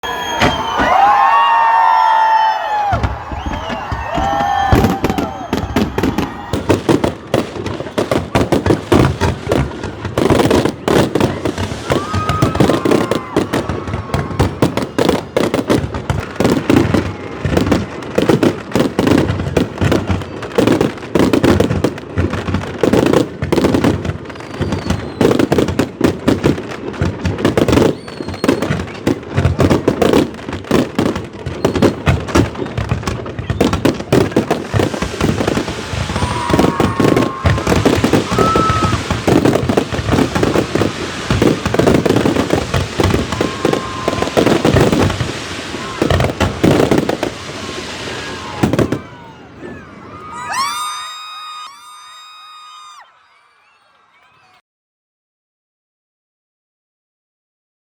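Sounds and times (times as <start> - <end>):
firework whistles: 0.0 - 7.1, 11.3 - 15.5, 24.2 - 25.7, 27.6 - 29.0, 31.5 - 32.1, 33.4 - 49.2, 50.3 - 54.6
fireworks bangs and crackles: 0.0 - 53.0.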